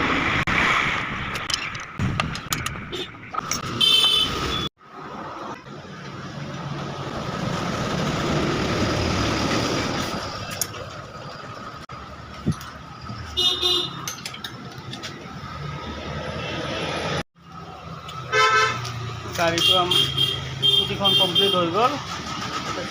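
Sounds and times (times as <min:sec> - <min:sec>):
road traffic noise: 0:00.0 - 0:22.9
vehicle horn toot: 0:03.7 - 0:04.7, 0:13.4 - 0:14.0, 0:18.3 - 0:18.8, 0:19.6 - 0:21.7.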